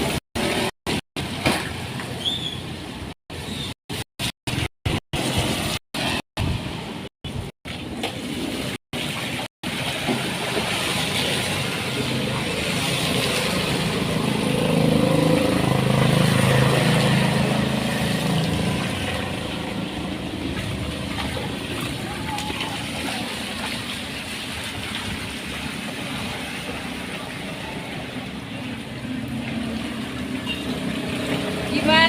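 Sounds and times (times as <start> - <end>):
motor vehicle passing: 10.8 - 32.0.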